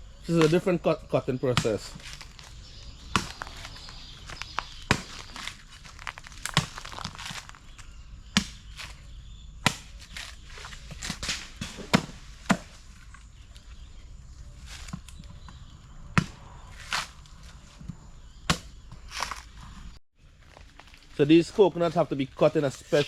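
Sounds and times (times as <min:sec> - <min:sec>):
machete chopping coconut husk: 0:01.5 - 0:12.9, 0:16.2 - 0:17.2, 0:18.4 - 0:19.5.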